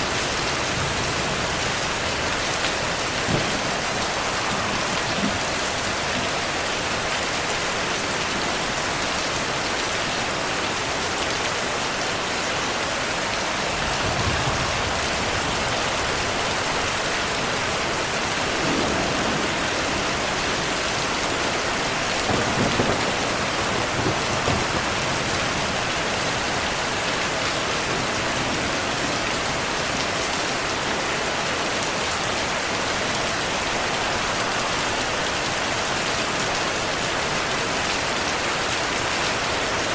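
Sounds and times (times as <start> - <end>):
low thunder rumbles: 0.0 - 7.1, 13.7 - 26.5
steady rainfall: 0.0 - 39.9.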